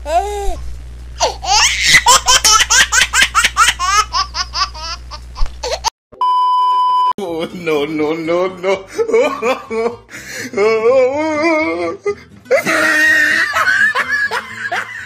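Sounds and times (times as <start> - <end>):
high-pitched giggling laughter: 1.4 - 5.9, 12.5 - 15.0
test-tone beep: 6.2 - 7.1.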